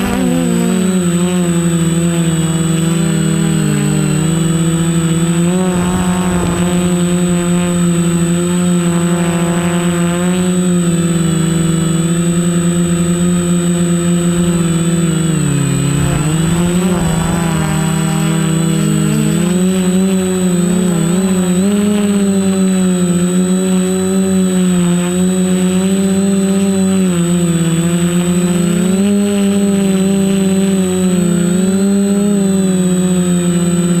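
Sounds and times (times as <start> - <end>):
thin high-pitched whine: 0.0 - 23.0
drone propellers buzzing: 0.0 - 34.0.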